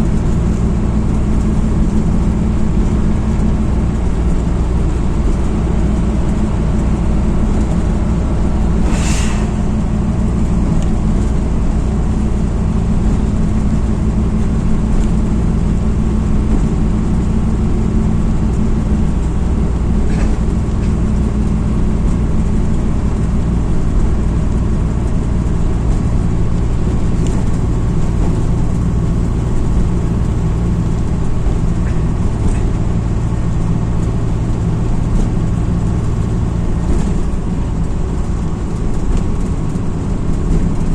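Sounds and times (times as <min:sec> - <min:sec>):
bus diesel engine humming: 0:00.0 - 0:40.9
road noise: 0:00.0 - 0:40.9
brief hiss: 0:08.7 - 0:10.9.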